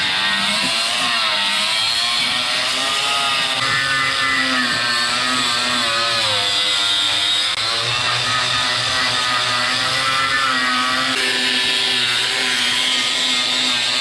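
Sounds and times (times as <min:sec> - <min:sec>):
power tool grinding metal: 0:00.0 - 0:14.0.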